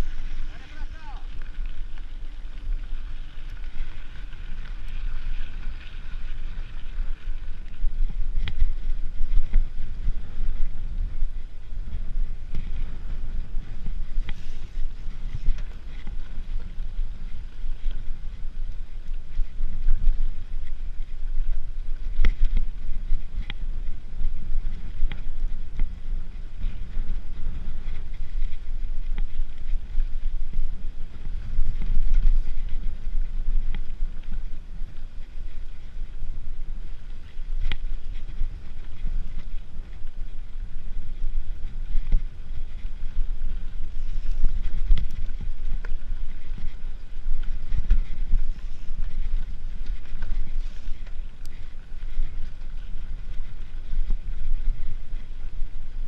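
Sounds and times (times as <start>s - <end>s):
bike clicks and rattles: 0.0s - 56.0s
wind buffeting microphone: 0.0s - 56.0s.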